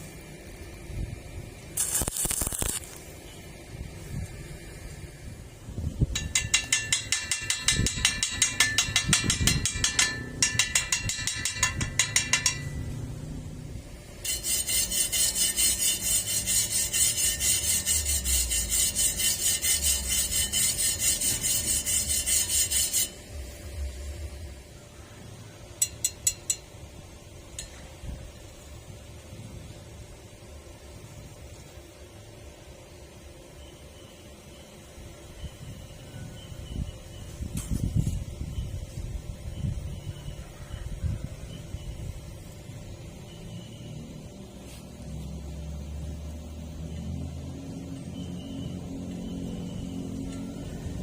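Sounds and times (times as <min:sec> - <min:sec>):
pulsing tool noise: 0:00.0 - 0:05.3, 0:05.9 - 0:24.0.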